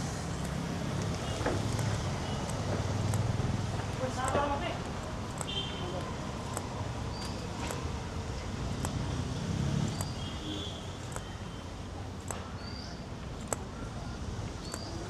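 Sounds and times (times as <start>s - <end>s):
footsteps clicking: 0.1s - 8.2s
bird chirps: 5.4s - 7.8s, 9.8s - 11.6s, 12.3s - 15.0s.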